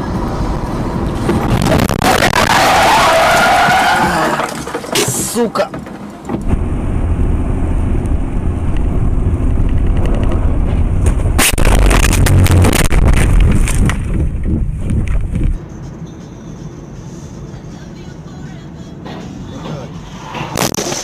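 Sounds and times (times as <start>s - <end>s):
car engine rumbling: 0.0s - 21.0s
crunching and rattling: 1.2s - 6.5s, 9.6s - 15.6s.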